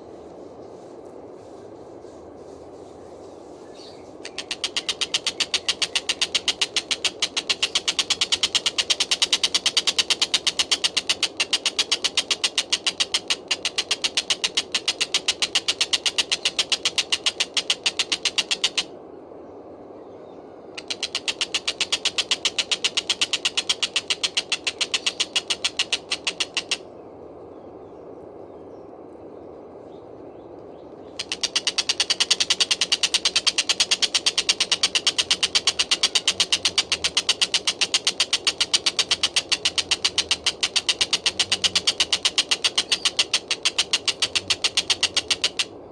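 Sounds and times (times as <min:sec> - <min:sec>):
kingfisher rattling call: 0:04.2 - 0:18.9, 0:20.8 - 0:26.9, 0:31.2 - 0:45.8.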